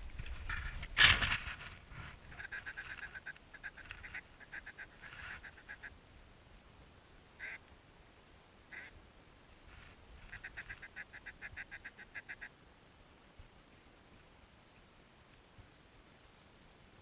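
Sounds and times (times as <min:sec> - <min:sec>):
duck quacking: 0:02.3 - 0:05.9, 0:07.4 - 0:07.6, 0:08.7 - 0:08.9, 0:10.3 - 0:12.5.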